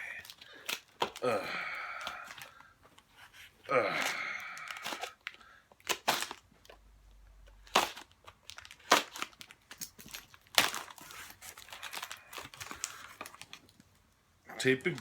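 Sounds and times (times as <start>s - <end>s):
tape ripping off: 5.8s - 6.4s, 7.6s - 9.6s
package crinkling: 7.5s - 13.9s.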